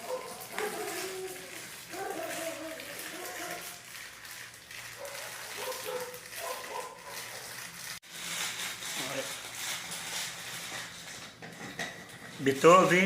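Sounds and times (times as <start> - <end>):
dog whining: 0.0 - 3.8.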